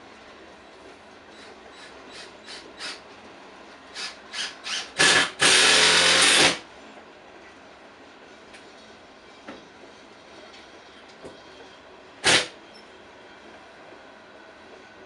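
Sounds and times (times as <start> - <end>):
bursts of harsh machine noise: 3.9 - 6.7, 12.2 - 12.6.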